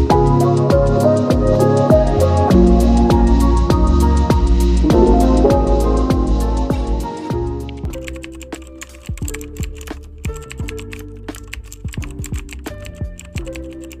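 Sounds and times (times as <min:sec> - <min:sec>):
electronic music with held notes: 0:00.1 - 0:08.0
bass drum hits sliding down: 0:04.8 - 0:07.5
crisp clicky percussion: 0:04.8 - 0:14.0.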